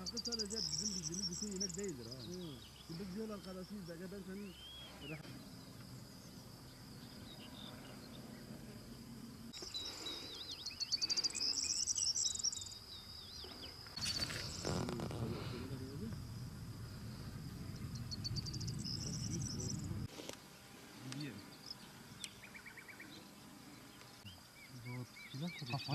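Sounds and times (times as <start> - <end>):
crickets trilling: 0.0 - 25.9
brief rustle: 13.9 - 15.6
low rumbling noise: 14.4 - 20.1.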